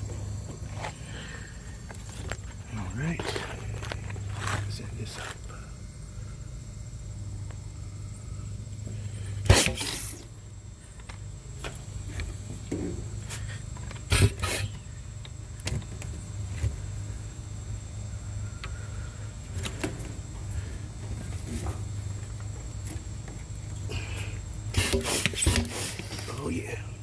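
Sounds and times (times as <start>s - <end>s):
steady low hum: 0.0s - 27.0s
hand pump strokes: 24.7s - 26.3s.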